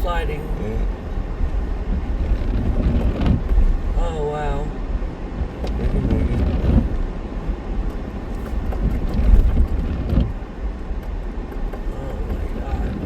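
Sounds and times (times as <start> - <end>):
tyres and engine rumbling: 0.0 - 13.0
wind buffeting microphone: 0.0 - 13.0
small knocks: 7.9 - 13.0.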